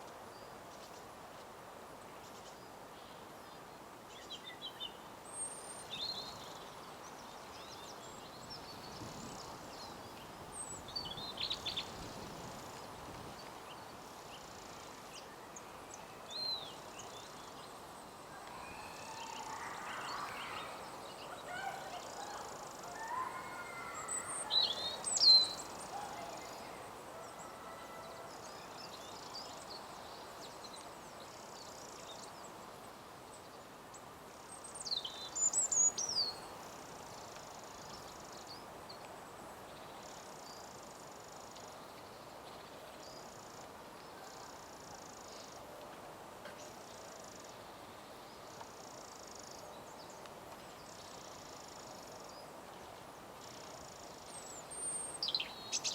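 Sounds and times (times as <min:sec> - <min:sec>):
outdoor ambience hiss: 0:00.0 - 0:55.9
background birdsong: 0:02.0 - 0:45.8, 0:46.5 - 0:55.9
sharp high bird calls: 0:18.4 - 0:26.8.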